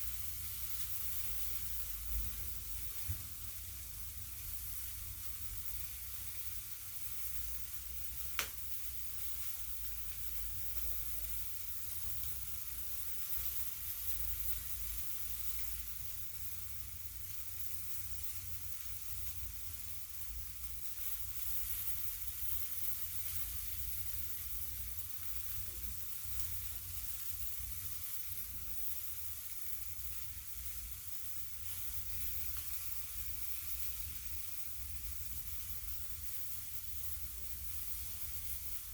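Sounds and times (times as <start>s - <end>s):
meat sizzling on a grill: 0.0s - 38.9s
sharp click: 8.4s - 8.6s.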